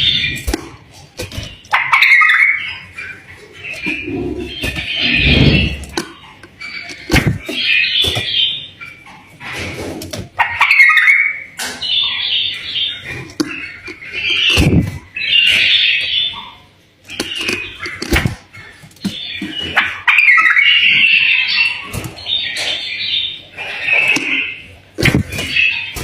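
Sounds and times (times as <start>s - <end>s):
bird warbling: 1.4s - 8.8s.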